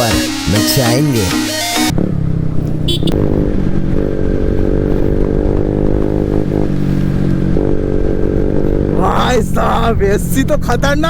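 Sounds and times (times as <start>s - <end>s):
man speaking: 0.0s - 1.4s, 9.0s - 11.0s
motorcycle exhaust at steady speed: 1.9s - 11.0s.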